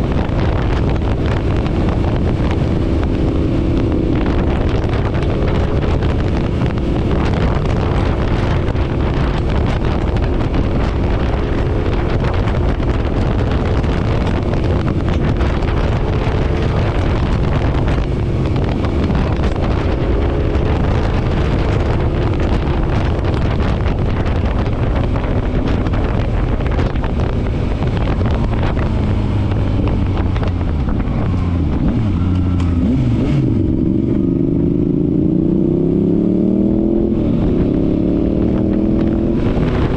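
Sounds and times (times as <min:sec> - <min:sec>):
motorcycle engine cruising: 0:00.0 - 0:39.9
wind rushing over microphone: 0:00.0 - 0:39.9.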